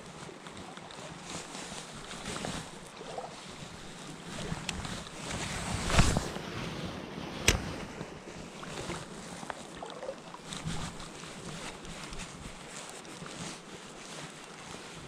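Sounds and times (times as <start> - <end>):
stream water running: 0.0 - 6.4, 7.4 - 15.0
sharp click: 7.4 - 7.7.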